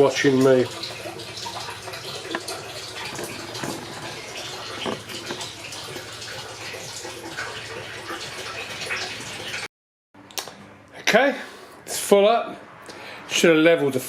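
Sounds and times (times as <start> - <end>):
water running into a tank: 0.0 - 9.7.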